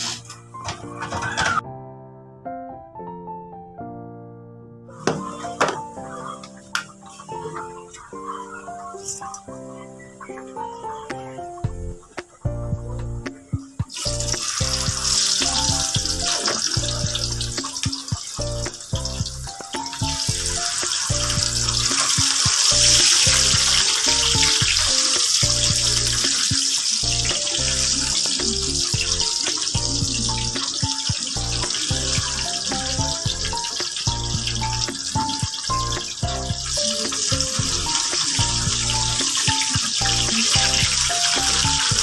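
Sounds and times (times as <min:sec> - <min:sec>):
water running from a tap: 0:00.0 - 0:00.3, 0:13.8 - 0:42.0
background music with a beat: 0:11.1 - 0:42.0.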